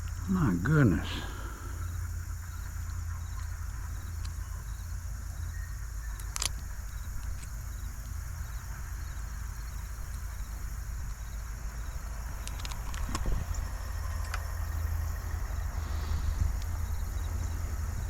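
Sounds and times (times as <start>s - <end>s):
insects chirping: 0.0s - 18.0s
low steady rumble: 0.0s - 18.0s.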